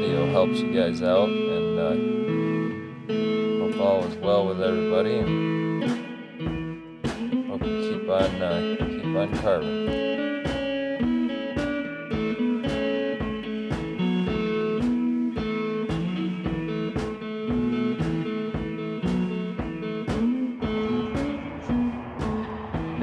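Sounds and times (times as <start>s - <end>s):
blues guitar music: 0.0s - 23.0s.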